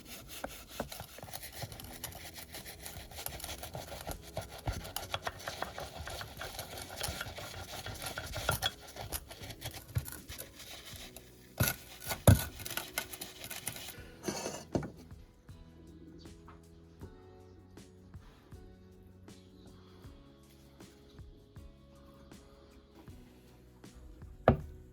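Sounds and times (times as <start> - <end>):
scraping rusty metal: 0.0 - 15.0.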